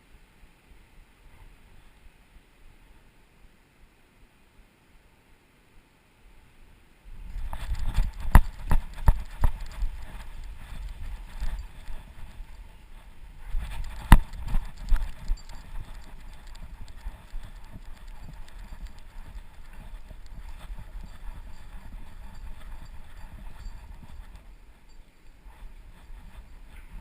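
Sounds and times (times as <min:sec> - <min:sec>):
dog's running footfalls: 0:07.3 - 0:12.6, 0:13.4 - 0:27.0.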